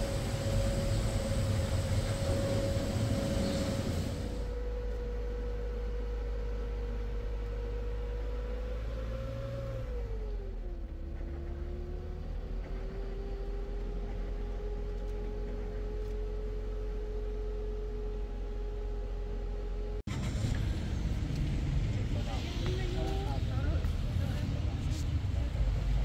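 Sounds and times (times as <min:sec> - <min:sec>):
steady whine: 0:00.0 - 0:05.9
motor vehicle rumbling: 0:00.0 - 0:26.0.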